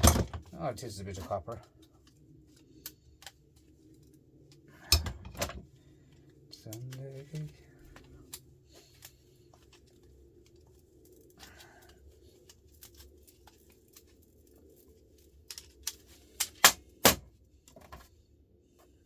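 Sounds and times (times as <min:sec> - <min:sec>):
metal parts knocking: 0:00.0 - 0:00.5, 0:04.9 - 0:05.6.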